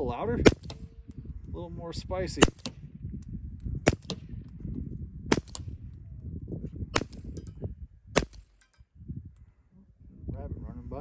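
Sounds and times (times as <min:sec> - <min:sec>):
suppressed pistol shots: 0:00.4 - 0:01.1, 0:02.4 - 0:02.8, 0:03.8 - 0:04.4, 0:05.3 - 0:05.8, 0:07.0 - 0:07.4, 0:08.2 - 0:08.7.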